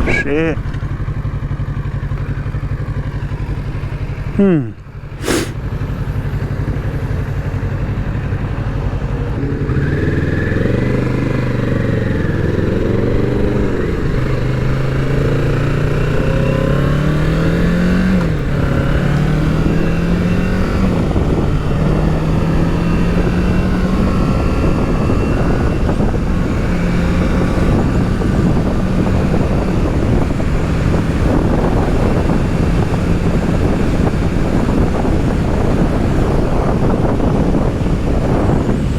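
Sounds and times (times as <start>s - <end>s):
motorcycle engine accelerating: 0.0s - 38.9s
wind noise on microphone: 16.0s - 38.9s.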